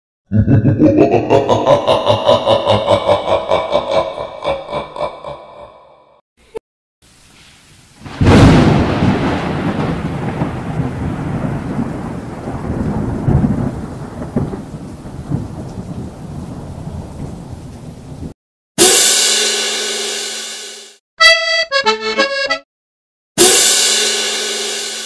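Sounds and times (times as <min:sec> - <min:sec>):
rain-like hiss: 0:07.0 - 0:11.8
rolling thunder: 0:08.0 - 0:18.4
thunderclap: 0:08.0 - 0:18.4.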